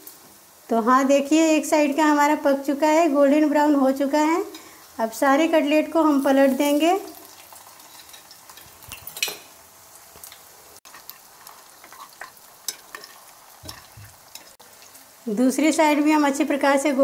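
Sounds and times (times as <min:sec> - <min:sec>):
food sizzling in oil: 0:00.0 - 0:17.0
utensils scraping a pan: 0:07.8 - 0:09.4.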